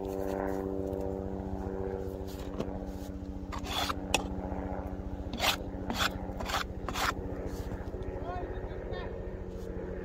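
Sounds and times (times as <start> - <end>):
engine humming: 0.0 - 10.0
shovel scraping snow: 2.1 - 4.2, 5.3 - 7.8.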